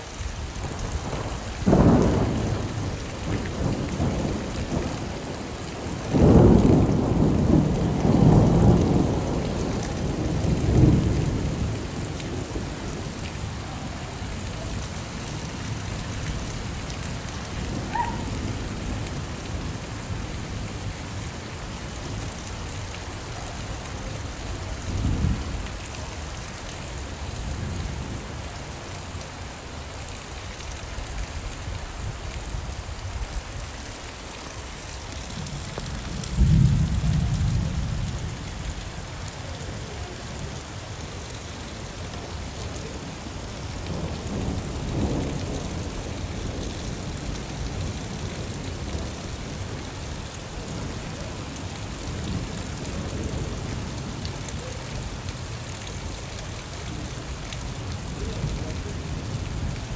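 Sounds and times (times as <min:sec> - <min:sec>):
rain falling: 0:00.0 - 0:59.9
thunder rumbling: 0:01.0 - 0:21.2, 0:35.3 - 0:38.4.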